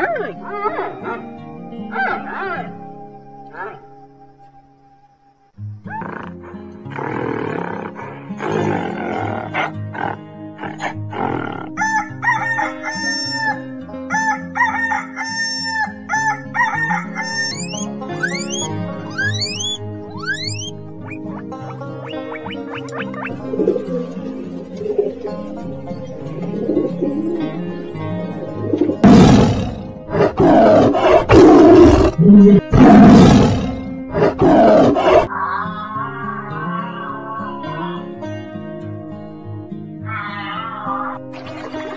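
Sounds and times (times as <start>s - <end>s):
background music: 0.0s - 41.9s
big cat roaring: 5.9s - 11.8s, 29.0s - 38.2s
rooster crowing: 11.8s - 17.8s.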